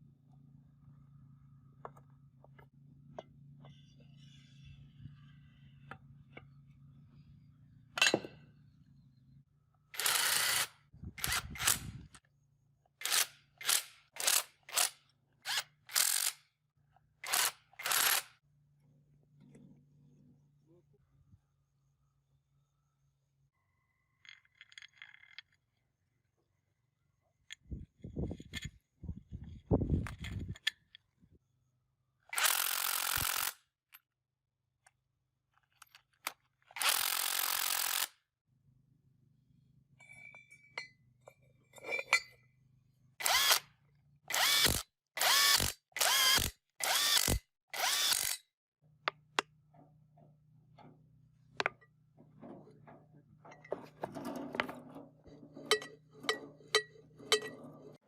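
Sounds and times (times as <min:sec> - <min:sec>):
noisy tool bursts: 0:13.0 - 0:16.4, 0:17.2 - 0:18.4, 0:43.2 - 0:43.7, 0:44.3 - 0:48.5.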